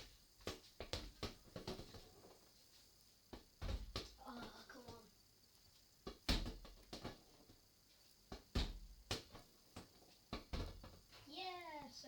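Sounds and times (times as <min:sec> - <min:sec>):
football thumping against washing machine: 0:00.4 - 0:02.1, 0:03.3 - 0:05.0, 0:06.0 - 0:07.5, 0:08.3 - 0:11.0.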